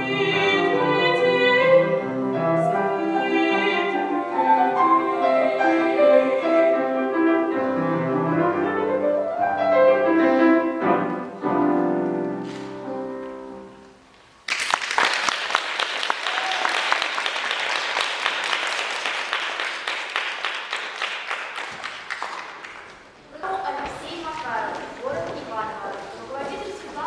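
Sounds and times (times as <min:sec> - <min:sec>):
piano song accompaniment: 0:00.0 - 0:14.2
applause: 0:14.4 - 0:23.0.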